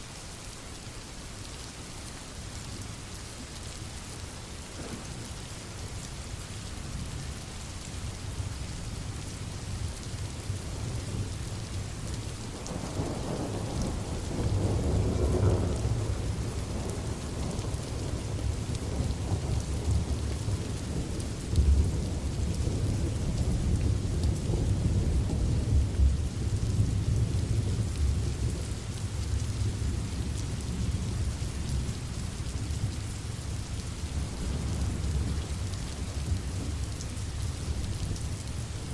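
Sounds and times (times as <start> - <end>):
steady rain: 0.0 - 38.9
deep rolling thunder rumble: 12.6 - 32.9, 33.7 - 38.7.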